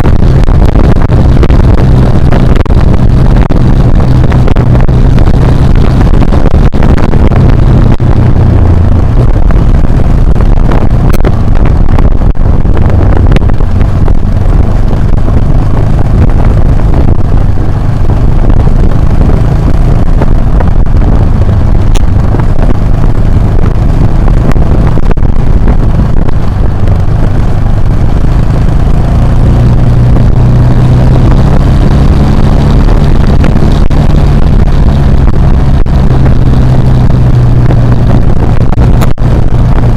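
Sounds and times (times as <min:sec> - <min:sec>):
motorcycle engine running: 0:00.0 - 0:39.9
rough noise: 0:00.0 - 0:39.9.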